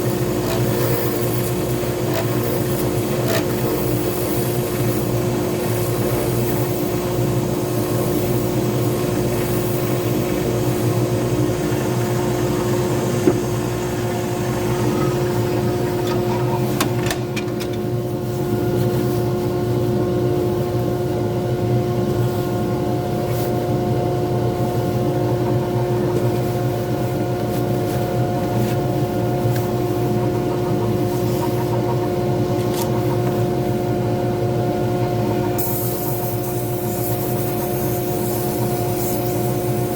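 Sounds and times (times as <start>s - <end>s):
lathe motor hum: 0.0s - 18.2s.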